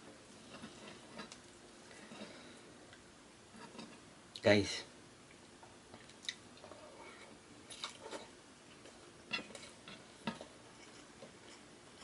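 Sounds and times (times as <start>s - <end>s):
person chewing food: 5.9s - 12.0s
wet mouth clicks and smacks: 6.0s - 6.4s.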